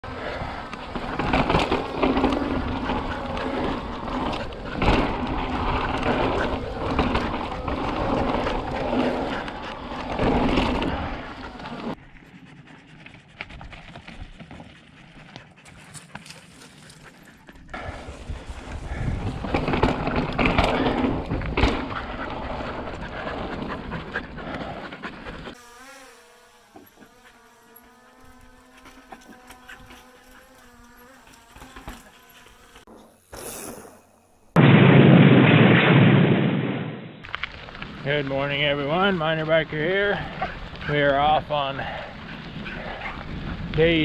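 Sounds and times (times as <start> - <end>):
bike tyres rolling: 0.0 - 25.6, 37.2 - 44.0
wind rush: 17.8 - 24.8.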